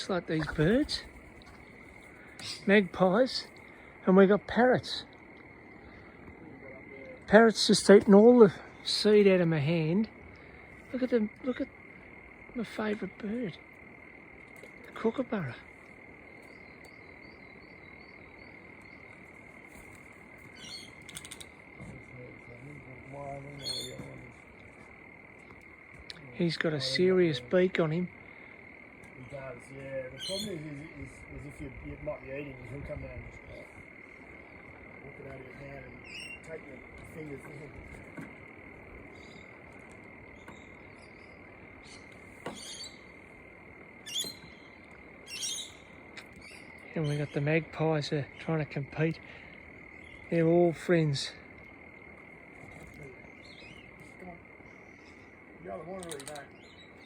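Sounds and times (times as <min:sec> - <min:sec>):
frog chorus: 0:00.0 - 0:57.0
bird chirps: 0:16.3 - 0:21.5, 0:23.2 - 0:24.6, 0:30.1 - 0:30.9, 0:35.9 - 0:36.6, 0:40.3 - 0:43.2, 0:44.0 - 0:47.4, 0:53.2 - 0:57.0.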